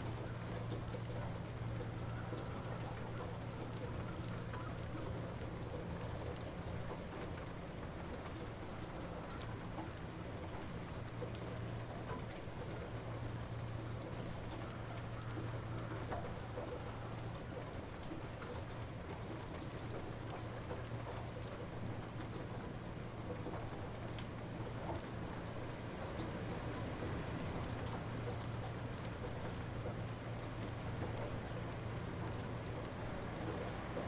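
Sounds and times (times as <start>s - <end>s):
light rain falling: 0.0s - 34.0s
small drips: 0.0s - 34.0s.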